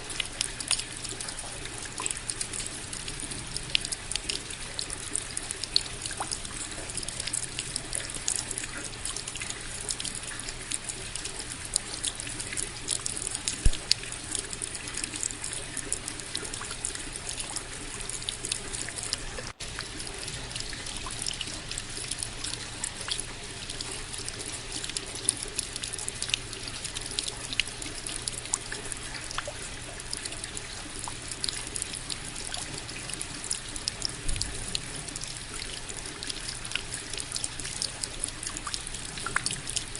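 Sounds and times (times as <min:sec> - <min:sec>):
close raindrop ticks: 0:00.0 - 0:39.9
steady rain: 0:00.0 - 0:39.9.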